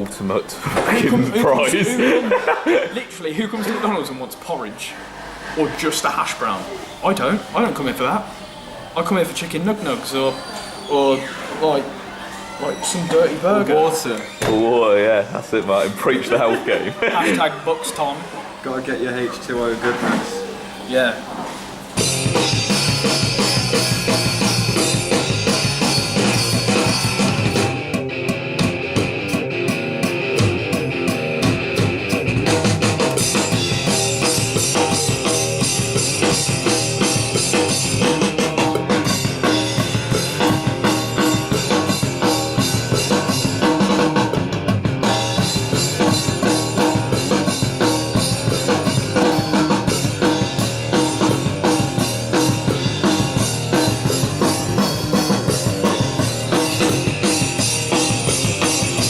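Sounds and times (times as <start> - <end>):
guitar: 21.8 - 59.0
drum kit kick and snare: 22.0 - 59.0
rock music: 22.0 - 59.0.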